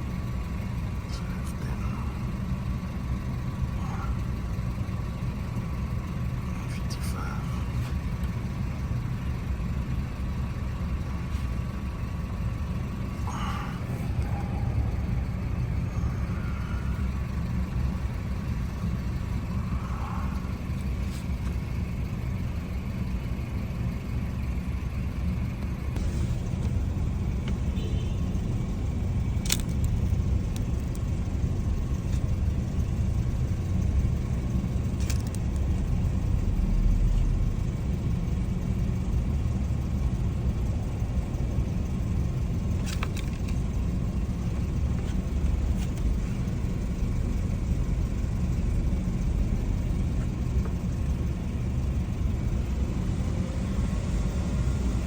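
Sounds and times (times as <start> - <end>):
low rumble: 0.0 - 24.0.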